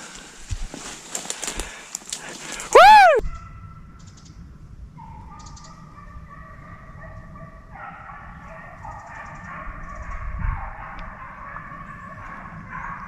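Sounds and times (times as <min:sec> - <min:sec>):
low wind rumble on microphone: 0:00.3 - 0:00.9, 0:02.6 - 0:13.0
hounds baying: 0:05.0 - 0:13.0.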